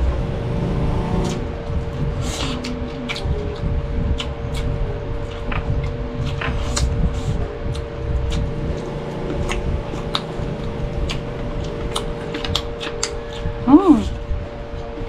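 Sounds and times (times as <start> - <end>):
low rumble: 0.0 - 15.0
steady hum: 0.0 - 15.0
wet chewing: 2.2 - 14.2.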